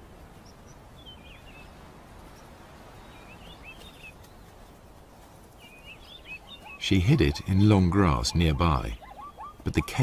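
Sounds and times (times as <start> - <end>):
open-air ambience: 0.0 - 10.0
faint bird chirps: 5.6 - 10.0.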